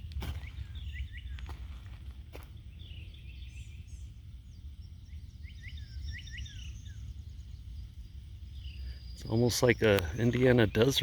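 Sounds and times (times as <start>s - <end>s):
low outdoor rumble: 0.0s - 11.0s
wild birds chirping: 0.0s - 11.0s.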